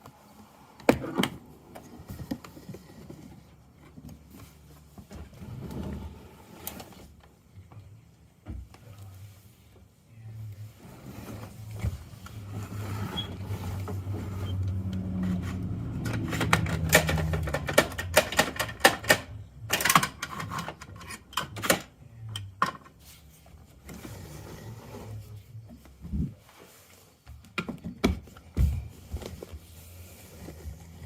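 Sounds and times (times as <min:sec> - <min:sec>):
plastic toy parts clicking and rattling: 0:16.0 - 0:21.9.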